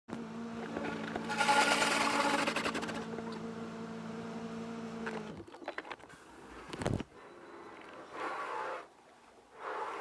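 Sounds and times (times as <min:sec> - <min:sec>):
car wash motor hum: 0:00.1 - 0:05.3.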